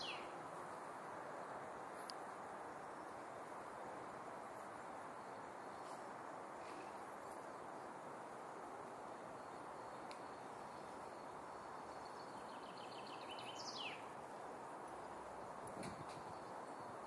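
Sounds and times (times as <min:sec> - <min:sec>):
songbird singing: 0:00.0 - 0:01.0, 0:09.1 - 0:17.0
outdoor background noise: 0:00.0 - 0:17.0.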